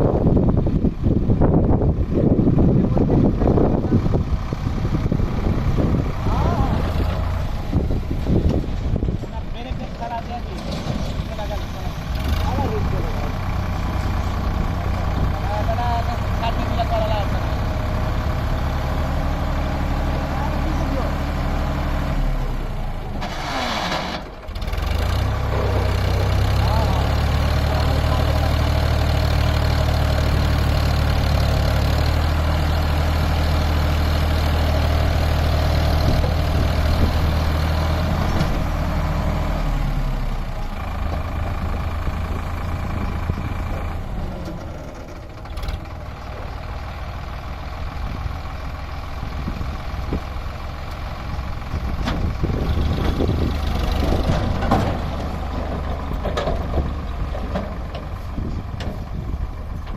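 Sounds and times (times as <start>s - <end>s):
tractor diesel engine running: 0.0s - 59.9s
knocks and clanks: 10.5s - 11.5s, 54.2s - 59.1s.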